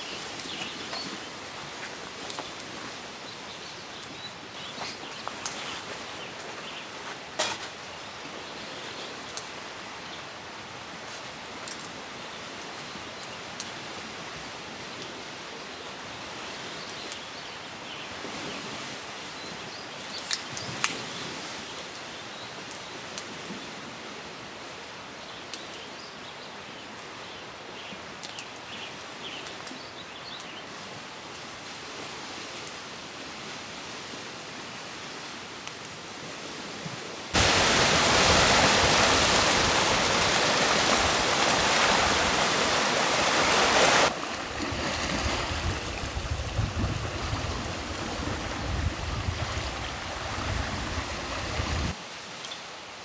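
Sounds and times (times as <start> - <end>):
rush of running water: 37.0 - 52.2.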